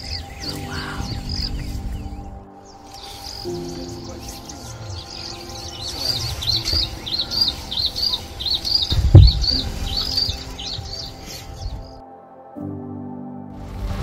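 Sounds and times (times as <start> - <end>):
bird high chirps: 0.0 - 12.0
low thump: 8.8 - 10.5.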